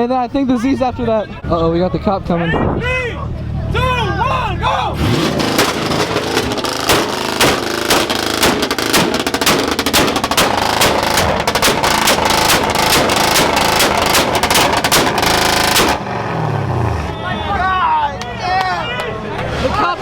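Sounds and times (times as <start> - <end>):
car exhaust pops and bangs: 5.0 - 16.3.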